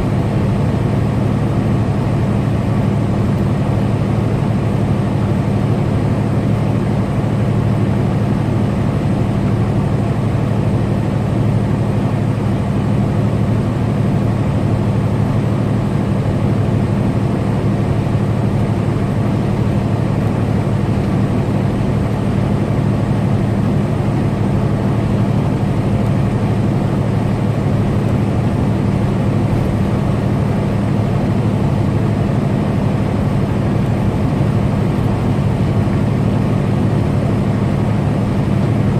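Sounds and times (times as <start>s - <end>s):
truck engine drone: 0.0s - 38.9s
road noise: 15.0s - 38.9s.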